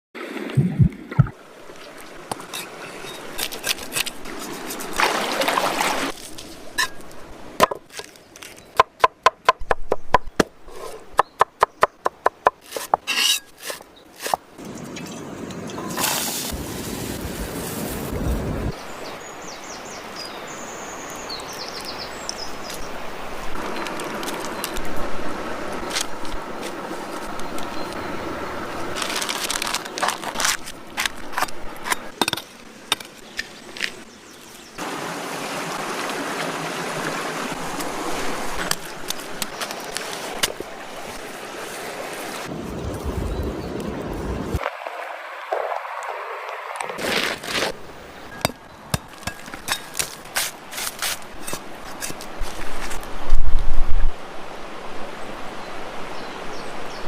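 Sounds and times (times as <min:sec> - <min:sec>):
handling and scraping noises: 0:01.7 - 0:08.9, 0:12.5 - 0:18.2, 0:23.6 - 0:25.1, 0:25.7 - 0:28.0, 0:28.8 - 0:34.7, 0:37.8 - 0:42.5, 0:46.8 - 0:53.4
fish cooking hiss: 0:15.9 - 0:18.2.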